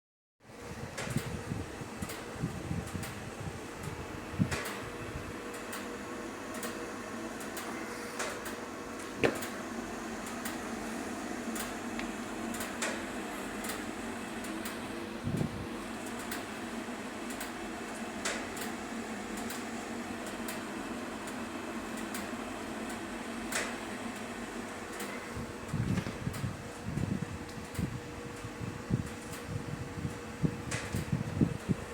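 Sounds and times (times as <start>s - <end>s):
pellet stove fan hum: 0.4s - 31.9s.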